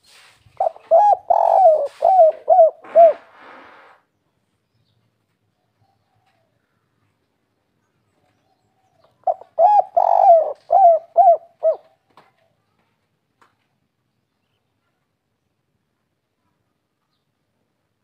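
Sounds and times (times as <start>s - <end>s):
dove cooing: 0.6s - 3.9s, 9.2s - 12.0s.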